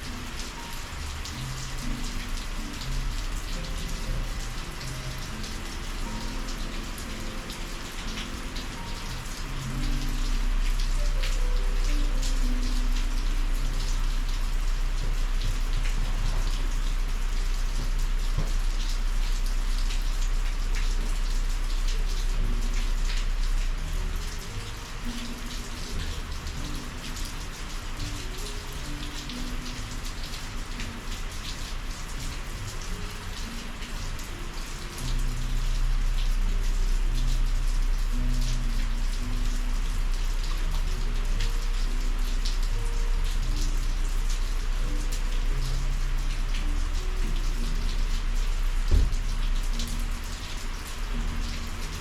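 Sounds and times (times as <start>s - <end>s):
heavy rain falling: 0.0s - 52.0s.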